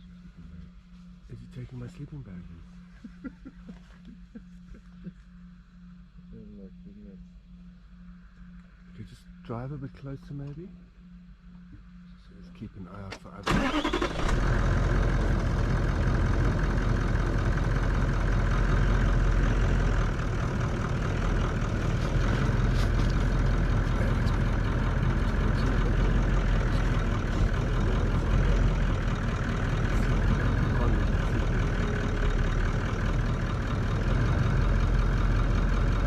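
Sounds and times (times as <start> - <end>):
vehicle engine idling: 0.0 - 36.0
faint engine ticks: 12.9 - 36.0.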